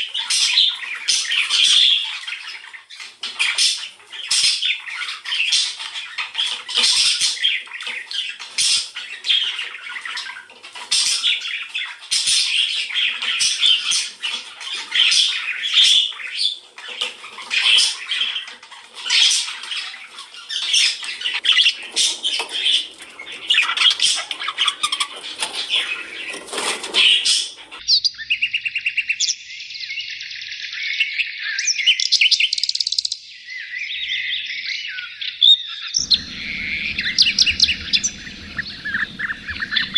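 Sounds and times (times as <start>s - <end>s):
birds chattering and squawking: 0.0s - 39.9s
birds trilling and whistling: 0.0s - 39.9s.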